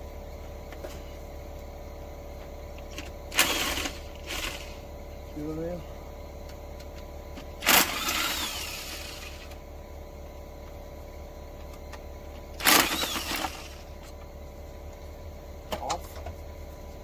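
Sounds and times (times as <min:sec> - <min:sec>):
steady low hum: 0:00.0 - 0:17.0
power tool undoing fasteners: 0:03.0 - 0:04.8, 0:07.6 - 0:09.6, 0:12.6 - 0:13.9.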